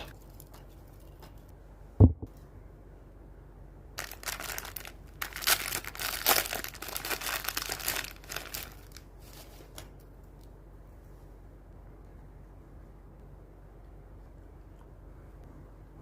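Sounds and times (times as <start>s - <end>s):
crinkling rustling handling noise: 4.0s - 10.5s.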